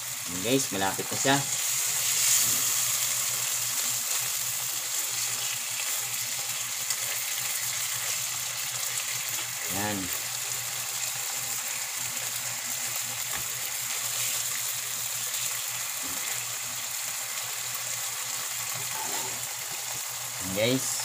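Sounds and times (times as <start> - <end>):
food sizzling in a frying pan: 0.0 - 21.0
spatula turning food: 0.8 - 9.7, 13.2 - 16.5, 18.6 - 20.2.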